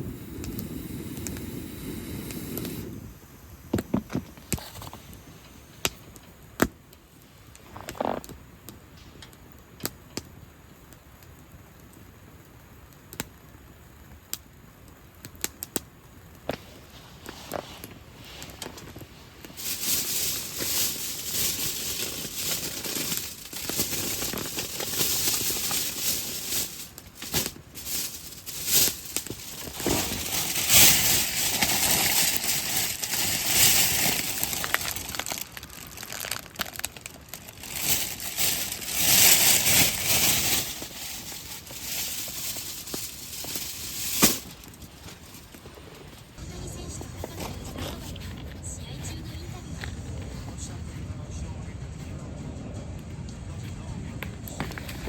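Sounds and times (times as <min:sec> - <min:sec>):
crinkling and rustling: 0:03.6 - 0:06.3, 0:07.5 - 0:08.4, 0:16.4 - 0:48.7.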